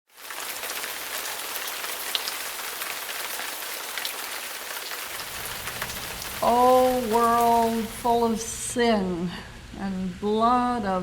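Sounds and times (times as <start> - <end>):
steady rain: 0.1 - 8.6
raindrops ticking: 0.2 - 8.2.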